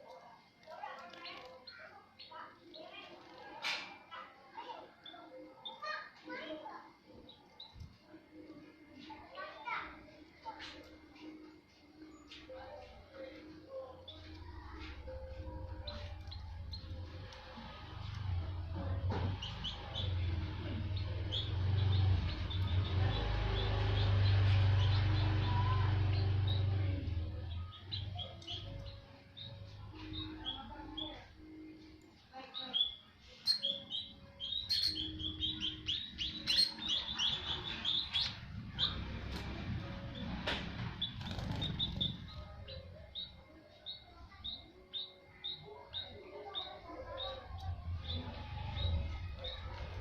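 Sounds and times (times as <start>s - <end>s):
munias chirping: 1.1s - 50.0s
wing flutters and clicks: 40.4s - 42.4s.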